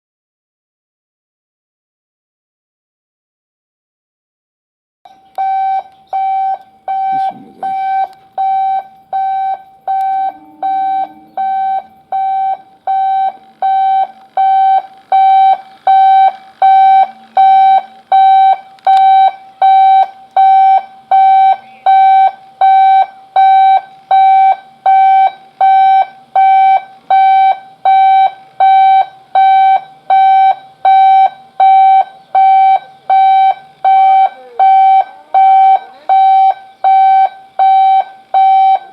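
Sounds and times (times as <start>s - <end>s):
electronic alarm beeping: 5.1s - 38.9s.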